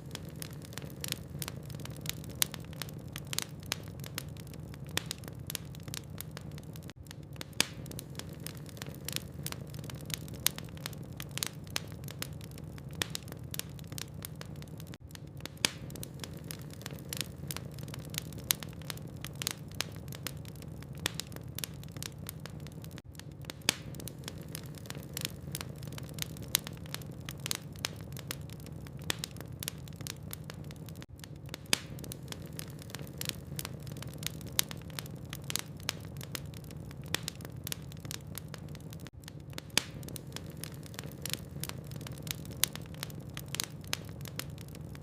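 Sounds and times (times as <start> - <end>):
wood fire crackling and popping: 0.0 - 45.0.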